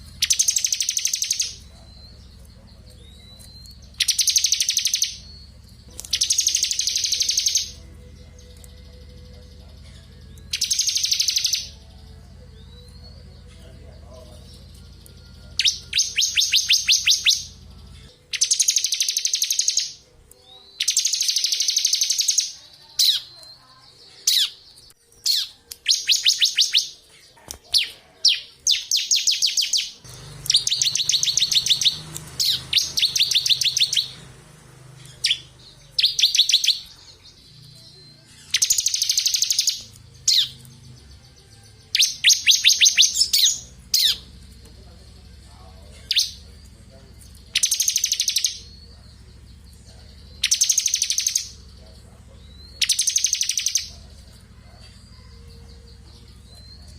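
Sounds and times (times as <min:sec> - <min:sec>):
bird sharp chip notes: 0:24.3 - 0:41.0
bird fast high trills: 0:28.8 - 0:34.2.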